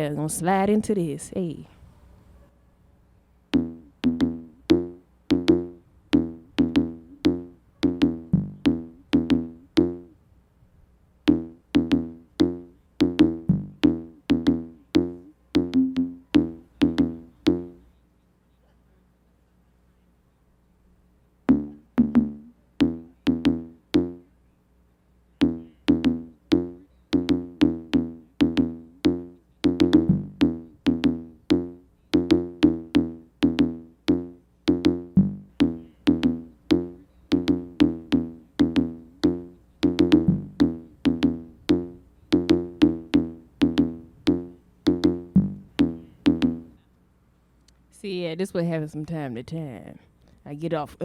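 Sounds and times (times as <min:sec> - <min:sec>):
drum machine and synthesizer beat: 0:03.6 - 0:10.1, 0:11.3 - 0:17.8, 0:21.5 - 0:24.2, 0:25.4 - 0:46.7.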